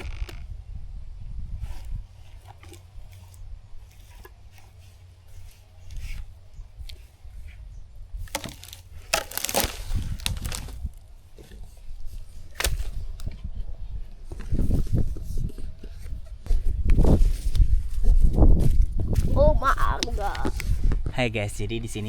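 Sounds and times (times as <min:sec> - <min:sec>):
wood cracking and snapping: 0:00.0 - 0:00.5, 0:08.2 - 0:13.5.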